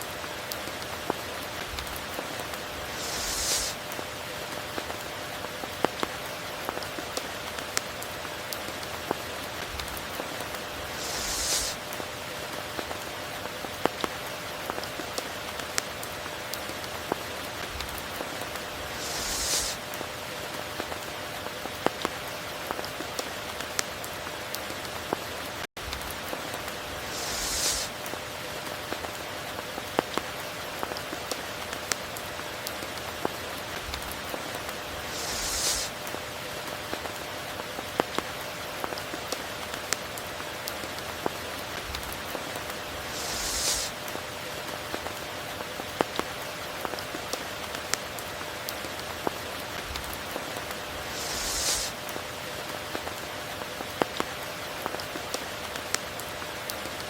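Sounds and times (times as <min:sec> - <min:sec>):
steady rain falling: 0:00.0 - 0:57.0
brief hissing swell: 0:02.9 - 0:03.8, 0:10.9 - 0:11.8, 0:18.9 - 0:19.8, 0:27.0 - 0:27.9, 0:35.0 - 0:35.9, 0:43.1 - 0:44.0, 0:51.1 - 0:51.9.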